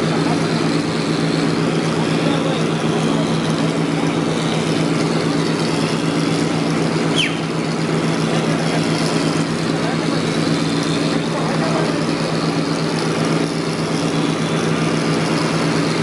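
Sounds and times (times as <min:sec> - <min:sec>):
engine humming: 0:00.0 - 0:16.0
short falling squeak: 0:07.1 - 0:07.5.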